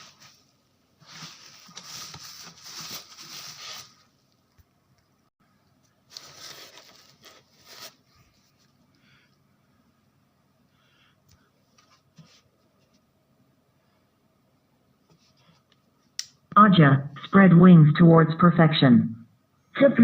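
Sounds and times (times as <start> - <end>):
packaging rustling and crinkling: 1.0 - 4.1, 6.1 - 8.2.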